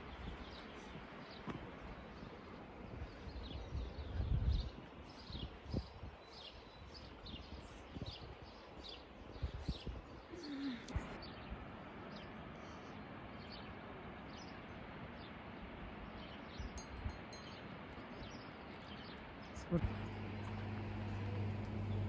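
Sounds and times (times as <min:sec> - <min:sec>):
outdoor ambience hiss: 0:00.0 - 0:22.0
small bird chirping: 0:08.9 - 0:10.9.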